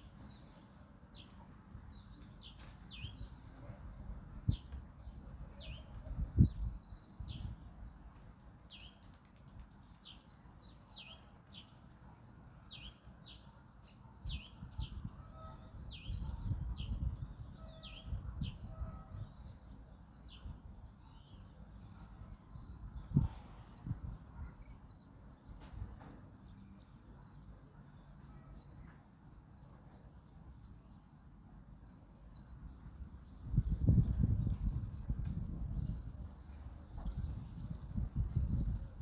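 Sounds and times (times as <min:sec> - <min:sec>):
wind gusts on microphone: 0:03.9 - 0:07.8, 0:14.3 - 0:19.5, 0:22.6 - 0:24.5, 0:32.8 - 0:39.0.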